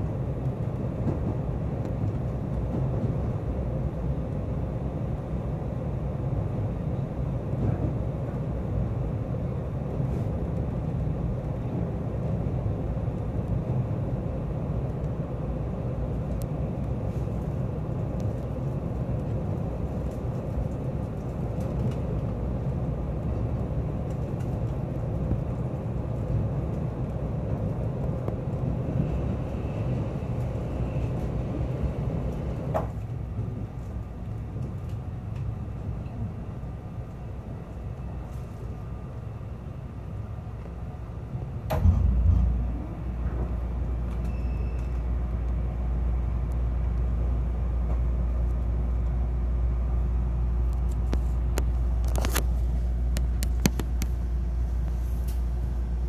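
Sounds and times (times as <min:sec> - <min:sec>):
train wheels rumbling on rail: 0:00.0 - 0:56.0
loud knock: 0:41.7 - 0:42.8
short sharp squeal: 0:44.2 - 0:45.0.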